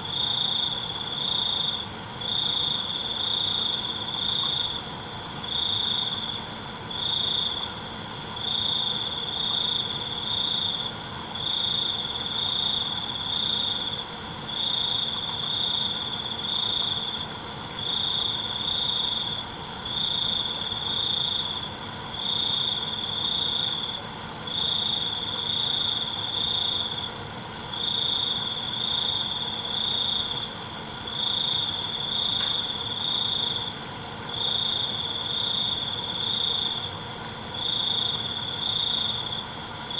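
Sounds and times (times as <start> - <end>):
crickets trilling: 0.0 - 39.9
insect chorus: 0.0 - 39.9.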